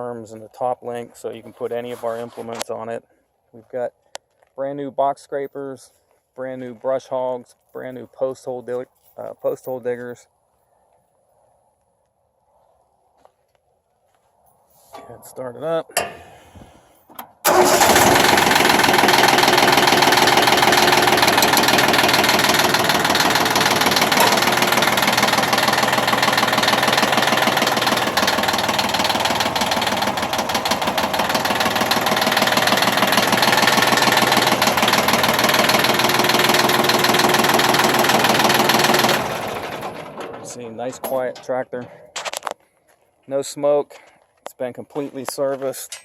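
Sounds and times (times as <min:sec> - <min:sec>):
diesel tractor engine running: 0:15.9 - 0:42.0.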